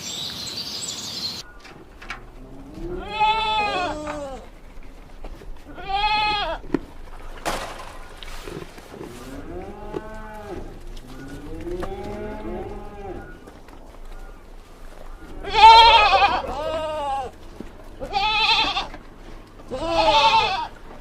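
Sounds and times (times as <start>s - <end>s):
animals bleating: 1.4s - 21.0s.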